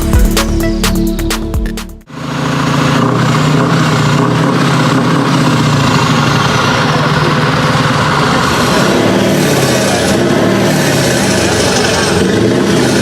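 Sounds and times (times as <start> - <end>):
electronic music: 0.0 - 2.1
truck diesel engine running: 0.0 - 13.0.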